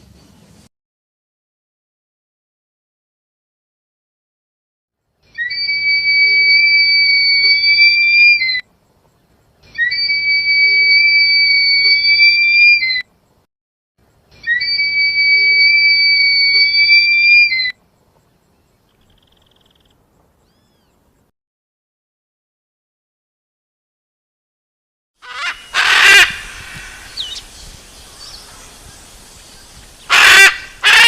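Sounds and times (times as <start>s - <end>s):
bird whistling long note: 5.3s - 8.6s, 9.8s - 13.0s, 14.4s - 17.8s, 27.0s - 30.5s.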